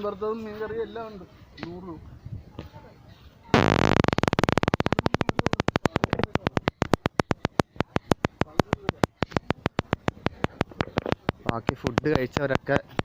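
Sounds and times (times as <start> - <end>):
rapid sharp clicks: 3.6 - 13.0.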